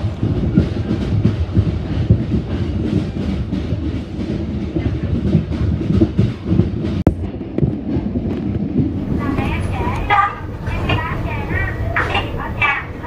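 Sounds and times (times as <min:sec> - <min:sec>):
train low rumble: 0:00.0 - 0:13.0
wheels and carriage clattering: 0:07.7 - 0:13.0.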